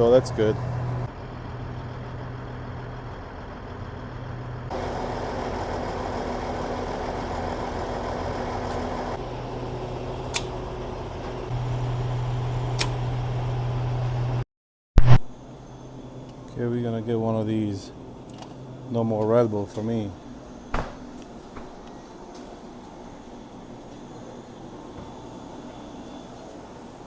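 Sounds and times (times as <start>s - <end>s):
diesel truck engines running: 0.0s - 14.4s, 15.4s - 27.0s
sharp clicks: 10.3s - 10.6s.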